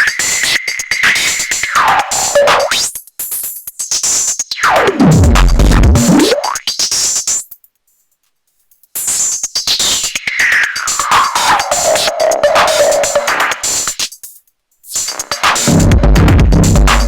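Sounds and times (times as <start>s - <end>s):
drum machine and synth loop: 10.4s - 14.0s, 14.9s - 17.0s
strong bass: 15.7s - 17.0s.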